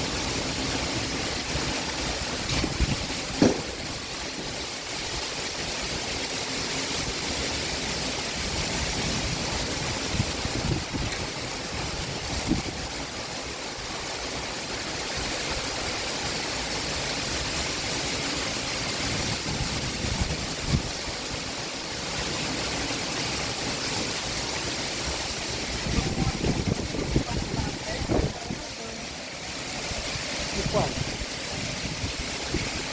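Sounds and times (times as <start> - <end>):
rain falling steadily: 0.0 - 32.9
short low knock: 3.4 - 3.8.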